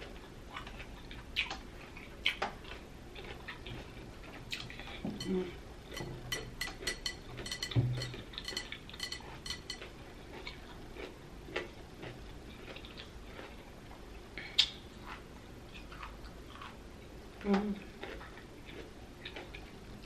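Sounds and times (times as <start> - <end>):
chewing crunchy pickled vegetable: 0.0 - 20.0.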